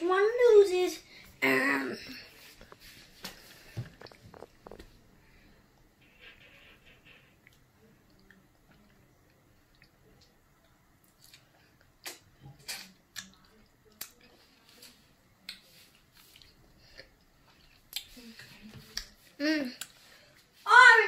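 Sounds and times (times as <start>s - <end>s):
wet chewing and mouth smacks: 11.0s - 14.3s.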